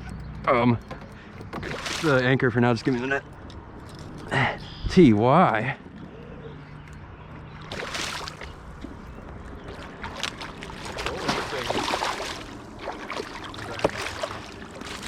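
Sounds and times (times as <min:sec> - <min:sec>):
knocks and rattles in a canoe: 0:00.0 - 0:04.3, 0:05.4 - 0:15.0
water splashing: 0:00.9 - 0:04.4, 0:07.4 - 0:15.0.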